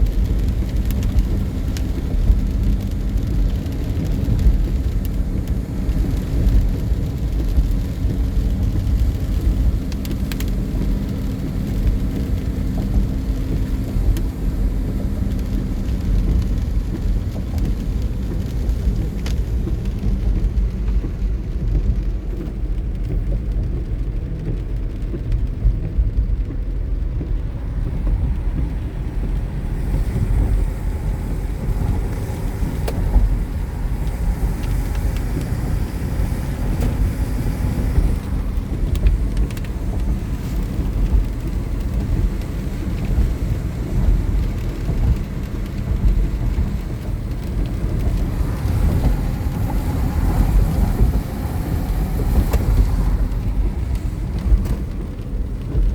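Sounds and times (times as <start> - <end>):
car road and engine rumble: 0.0 - 55.9.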